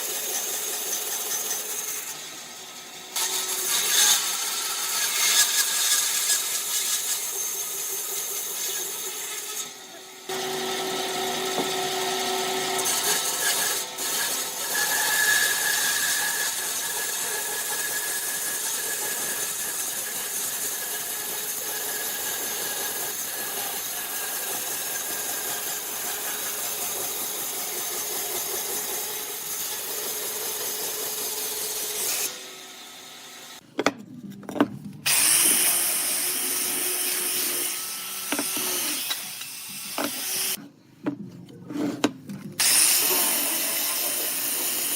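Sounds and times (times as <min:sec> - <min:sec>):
power tool working wood: 0:09.6 - 0:32.6, 0:35.1 - 0:40.6, 0:42.6 - 0:44.9.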